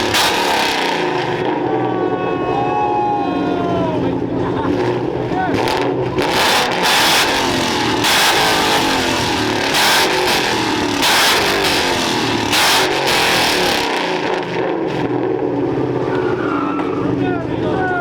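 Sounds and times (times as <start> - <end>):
loud bursts of noise: 0.0 - 2.1, 4.7 - 15.6
car engines revving: 0.0 - 18.0.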